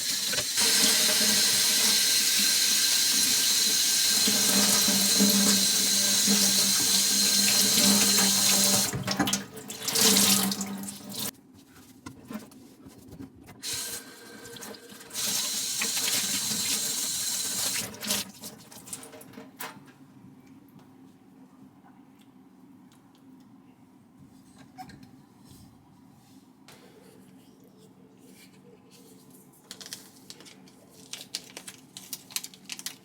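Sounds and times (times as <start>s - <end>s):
tap water running into sink: 0.0s - 11.3s, 13.6s - 18.4s.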